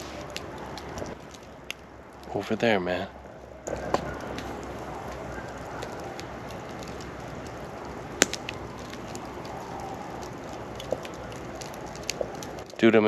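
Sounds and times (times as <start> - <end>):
campfire crackling: 0.0 - 13.0
fire popping: 0.0 - 13.0
distant coyotes yipping and howling: 3.1 - 12.7.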